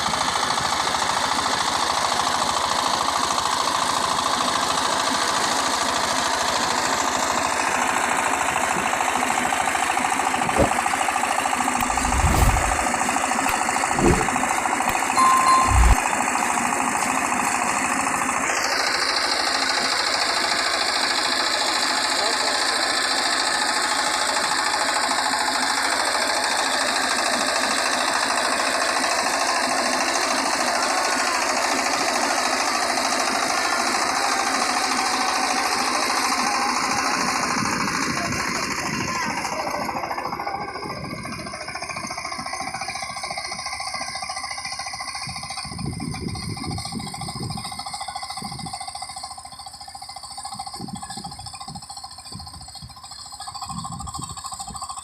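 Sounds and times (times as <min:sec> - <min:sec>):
diesel tiller engine knocking: 0:00.0 - 0:15.0, 0:16.5 - 0:55.0.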